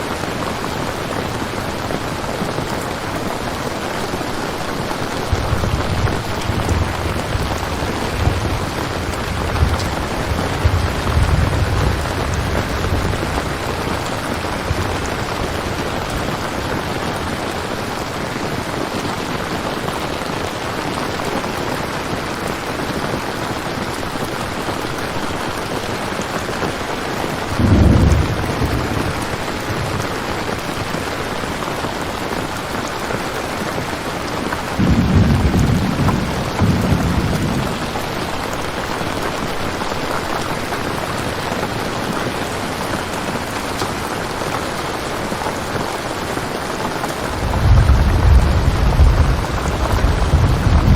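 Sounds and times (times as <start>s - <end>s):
heavy rain: 0.0s - 50.9s
thunder rolling: 4.3s - 17.8s, 27.4s - 30.8s, 34.8s - 39.9s, 47.0s - 50.9s.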